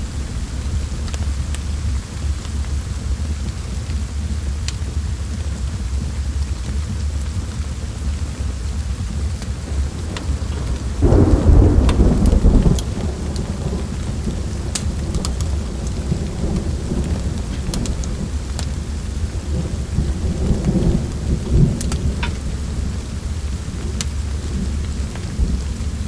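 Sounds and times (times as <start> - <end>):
steady rain: 0.0 - 26.0
thunder rumble: 0.0 - 26.0
sharp crackles: 8.6 - 26.0.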